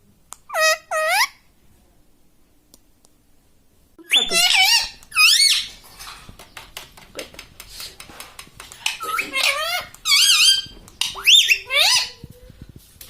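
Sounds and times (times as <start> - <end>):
parrot warbling calls: 0.5 - 1.4, 4.1 - 5.7, 8.9 - 12.2.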